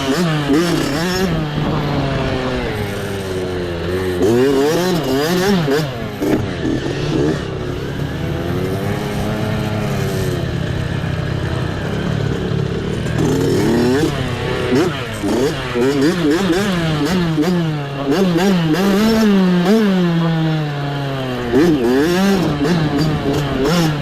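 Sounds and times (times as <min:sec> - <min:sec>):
mini bike engine revving: 0:00.0 - 0:24.0.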